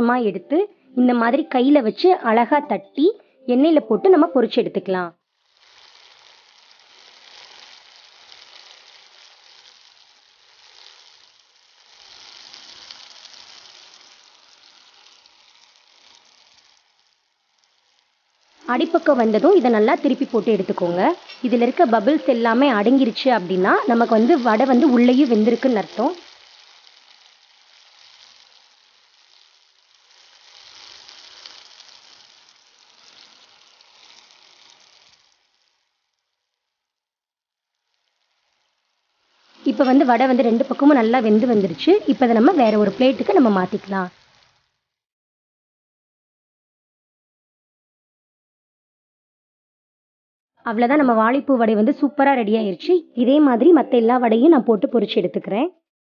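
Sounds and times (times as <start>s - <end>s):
food deep-frying in oil: 5.2s - 44.9s.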